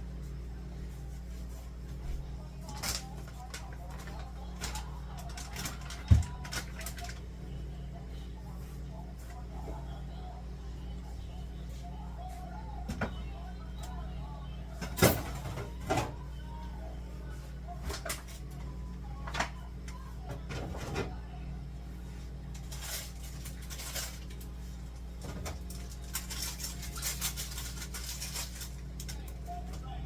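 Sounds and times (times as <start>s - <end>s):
steady low hum: 0.0s - 30.0s
kitchen items clattering: 2.6s - 7.3s, 14.8s - 16.2s, 22.6s - 24.6s, 25.2s - 29.8s
rustling clatter: 25.2s - 29.4s.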